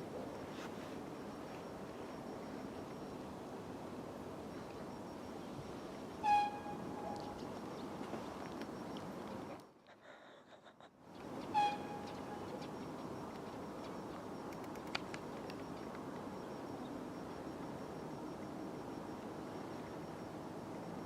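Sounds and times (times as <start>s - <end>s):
low rumble of station and trains: 0.0s - 21.0s
electric train horn toot: 6.2s - 7.3s, 11.5s - 12.4s.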